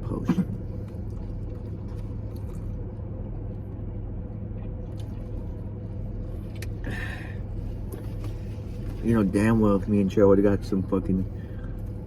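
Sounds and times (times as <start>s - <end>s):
car engine hum: 0.0s - 12.0s.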